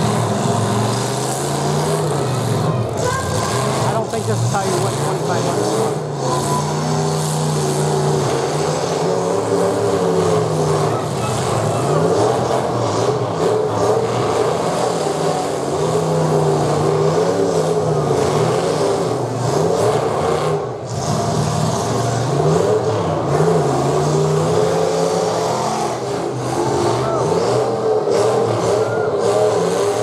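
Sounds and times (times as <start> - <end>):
car engines revving hard: 0.0 - 30.0.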